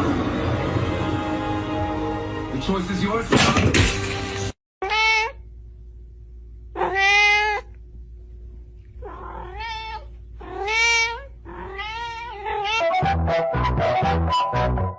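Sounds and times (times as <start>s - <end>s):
cat meowing: 4.8s - 5.4s, 6.8s - 7.7s, 9.0s - 13.1s.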